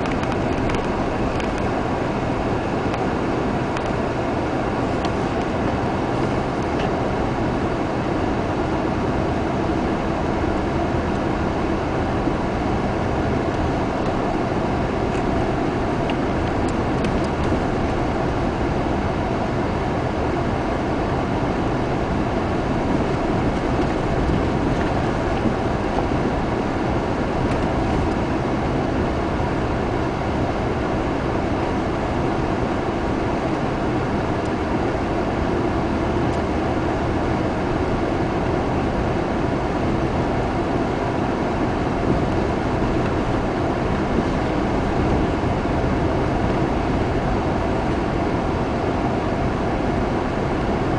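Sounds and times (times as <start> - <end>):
car engine: 0.0 - 50.9
road noise: 0.0 - 50.9.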